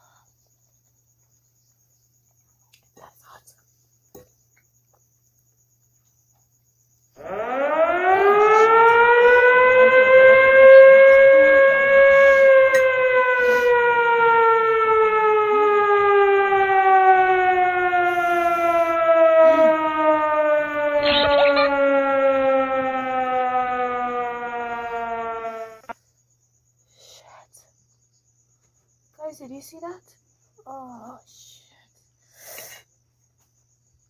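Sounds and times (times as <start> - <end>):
siren wailing: 7.2 - 26.0.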